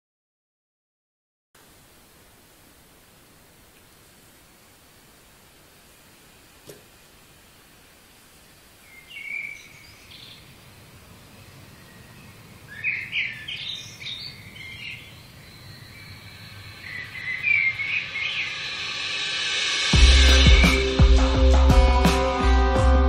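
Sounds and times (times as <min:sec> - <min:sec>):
birds chirping: 0:04.0 - 0:19.3.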